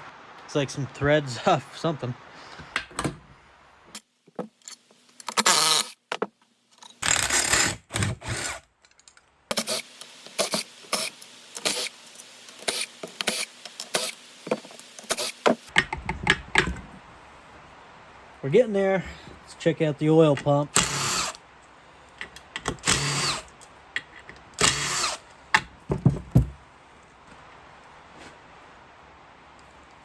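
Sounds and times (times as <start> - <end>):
cordless power tool bursts: 9.5 - 15.7, 20.7 - 21.4, 22.6 - 23.5, 24.6 - 25.2.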